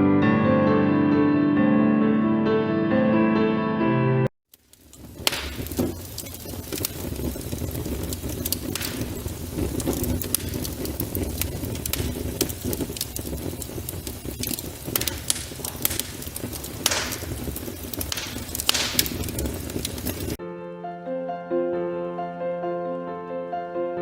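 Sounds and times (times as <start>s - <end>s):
fire crackling with pops: 4.5s - 20.4s.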